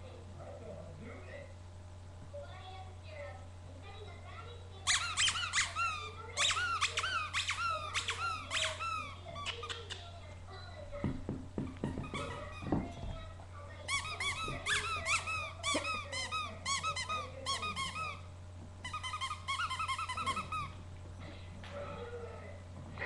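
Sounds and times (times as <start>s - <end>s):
electrical hum: 0.0s - 23.0s
rapid high-pitched squeaking: 4.9s - 10.0s, 18.8s - 20.8s.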